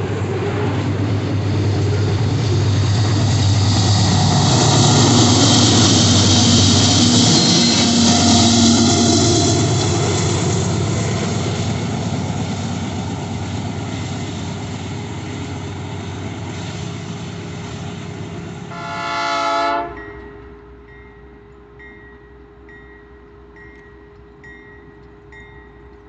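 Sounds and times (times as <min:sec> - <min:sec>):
train rumbling past: 0:00.0 - 0:26.0
locomotive horn blast: 0:18.7 - 0:20.2.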